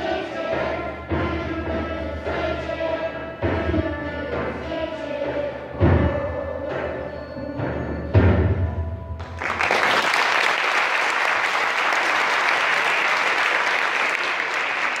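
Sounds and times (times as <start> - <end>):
audience applause: 9.2 - 15.0.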